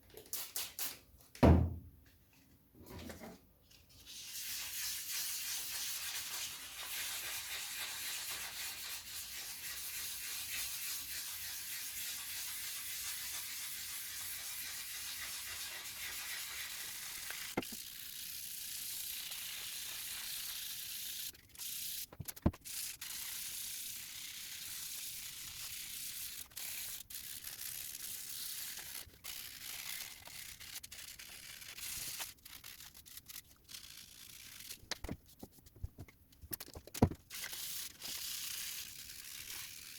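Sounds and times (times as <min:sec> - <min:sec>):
sandpaper rasping on plastic: 0:04.1 - 0:35.5, 0:37.3 - 0:39.9.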